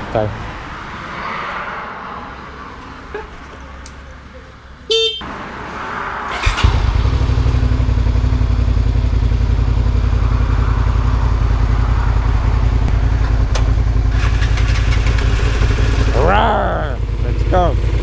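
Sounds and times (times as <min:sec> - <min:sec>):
motorcycle engine idling: 0:06.4 - 0:18.0.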